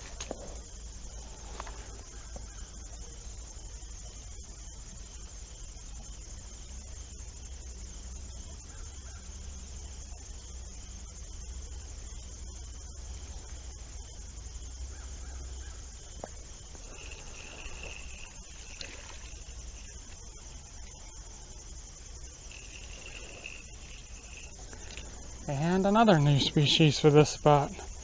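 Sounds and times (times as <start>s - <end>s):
higher insect calls: 0.0s - 28.0s
insects chirring: 0.0s - 28.0s
low outdoor rumble: 6.2s - 28.0s.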